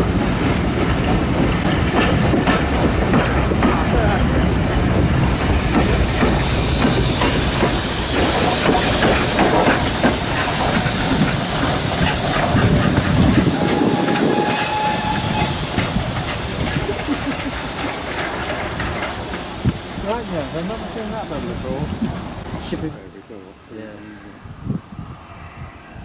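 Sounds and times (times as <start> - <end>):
steam locomotive hissing: 0.0 - 22.9
train wheels clicking on rails: 0.0 - 22.9
faint squeal: 13.5 - 15.6.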